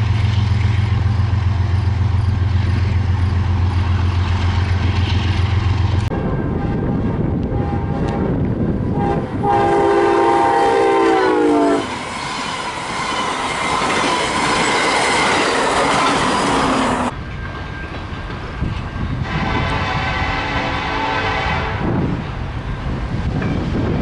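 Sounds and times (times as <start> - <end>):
train rumble and wheel noise: 0.0 - 24.0
locomotive air horn: 6.5 - 8.3, 8.9 - 12.0, 19.2 - 22.0.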